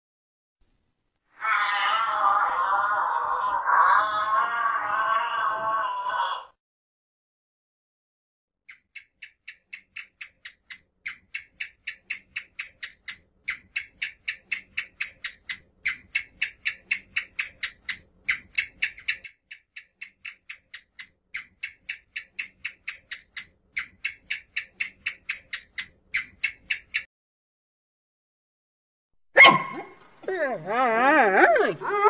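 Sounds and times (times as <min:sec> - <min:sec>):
gecko chirping dry clicks: 0:08.6 - 0:27.1.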